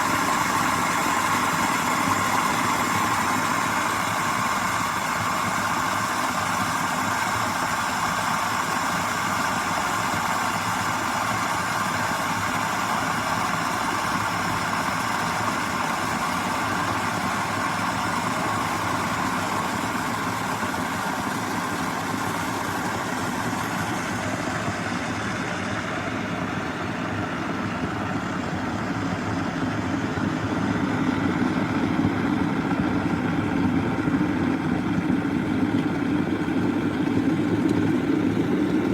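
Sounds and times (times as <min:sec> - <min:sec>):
electric kettle heating water: 0:00.0 - 0:38.9.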